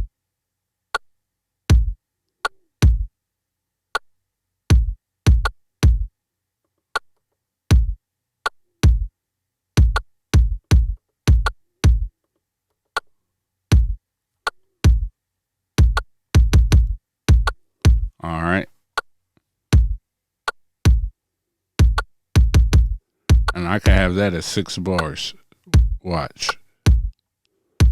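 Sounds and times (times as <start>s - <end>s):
kick drum thumps: 1.7s - 2.0s, 2.8s - 3.1s, 4.7s - 6.1s, 7.7s - 8.0s, 8.8s - 9.1s, 9.8s - 12.1s, 13.7s - 14.0s, 14.8s - 15.1s, 15.8s - 18.2s, 19.7s - 20.0s, 20.9s - 21.1s, 21.8s - 24.1s, 25.7s - 26.0s, 26.9s - 27.1s.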